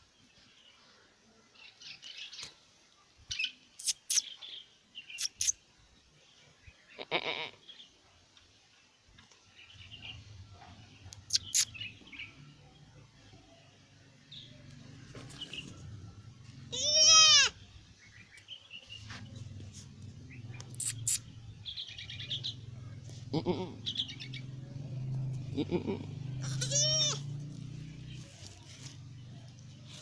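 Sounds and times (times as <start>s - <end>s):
high chirps: 3.8s - 4.2s, 5.2s - 5.6s, 11.2s - 11.9s, 20.3s - 21.5s
goat kid bleating: 7.0s - 7.6s, 16.7s - 17.6s, 23.3s - 23.8s, 25.6s - 27.3s.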